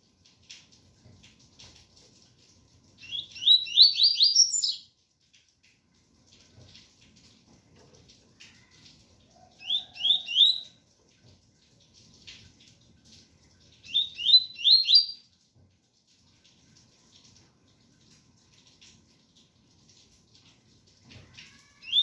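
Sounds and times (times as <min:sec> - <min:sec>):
faint rain: 0:00.0 - 0:22.0
bird whistling song: 0:03.0 - 0:04.9, 0:09.6 - 0:10.7, 0:13.8 - 0:15.2.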